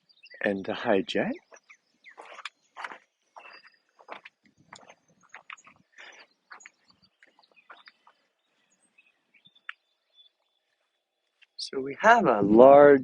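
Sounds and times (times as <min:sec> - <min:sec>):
birds chirping: 0:00.0 - 0:13.0
soft rustling or crunching: 0:01.4 - 0:09.8.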